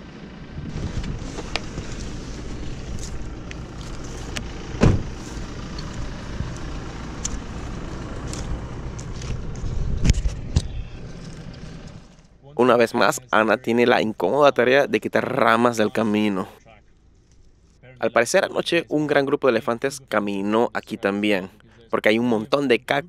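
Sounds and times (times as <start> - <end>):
engine idling: 0.0 - 21.9
car door opening: 0.7 - 5.4
knocks and clunks: 4.3 - 5.2.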